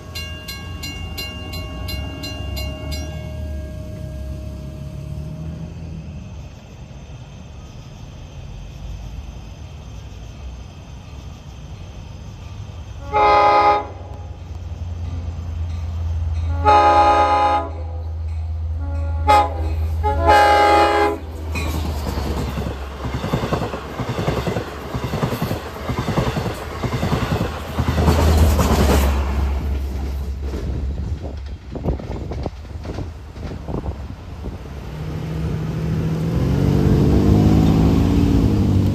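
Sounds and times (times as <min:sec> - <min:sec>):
locomotive engine rumble: 0:00.0 - 0:38.9
train horn blasts: 0:13.0 - 0:14.3, 0:16.4 - 0:18.0, 0:18.7 - 0:21.4
train wheels clickety-clack: 0:21.4 - 0:35.6.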